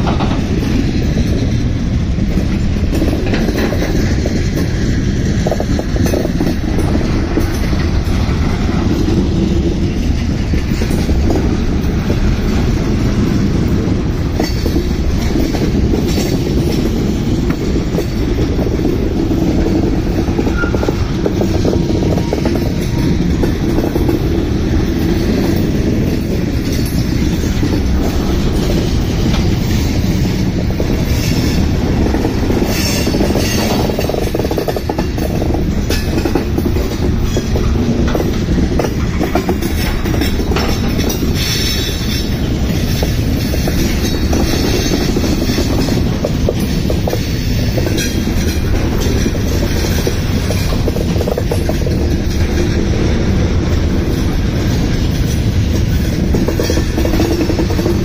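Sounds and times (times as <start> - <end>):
freight train rumbling past: 0.0 - 58.0
wheels clicking over rail joints: 0.0 - 58.0
wheel squeals: 20.3 - 23.1.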